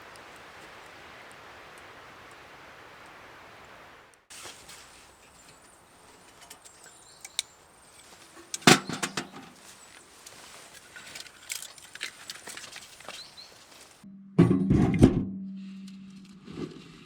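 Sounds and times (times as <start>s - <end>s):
metal objects clicking: 6.3s - 13.1s.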